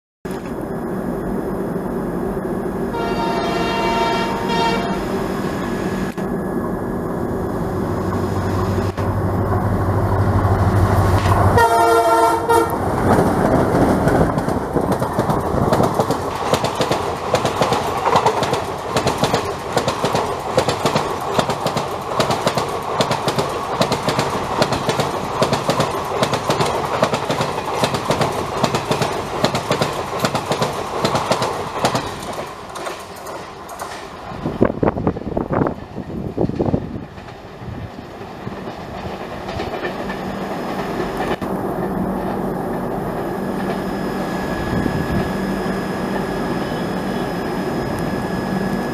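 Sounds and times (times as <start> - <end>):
diesel locomotive engine drone: 0.3 - 48.9
train horn: 2.9 - 5.2, 11.5 - 12.8
train wheels clattering over rails: 12.5 - 43.9.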